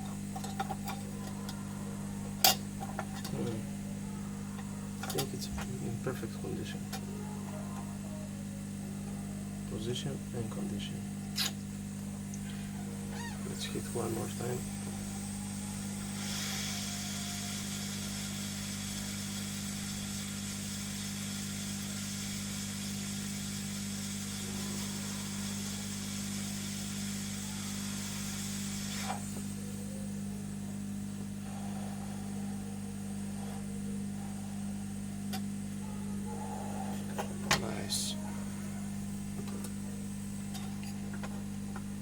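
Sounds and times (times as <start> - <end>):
steady low hum: 0.0 - 42.0
hot air gun hissing: 13.6 - 29.6.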